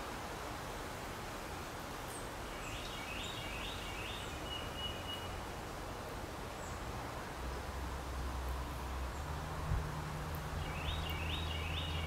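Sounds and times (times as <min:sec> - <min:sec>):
outdoor background noise: 0:00.0 - 0:12.0
songbird singing: 0:01.9 - 0:12.0.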